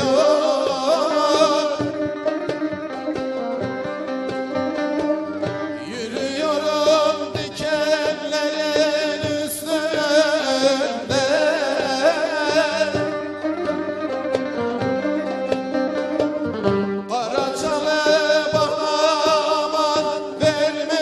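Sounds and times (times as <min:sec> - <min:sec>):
percussion strikes: 0:00.0 - 0:21.0
plucked strings: 0:00.0 - 0:21.0
person singing ornamented notes: 0:05.8 - 0:13.4, 0:17.1 - 0:21.0.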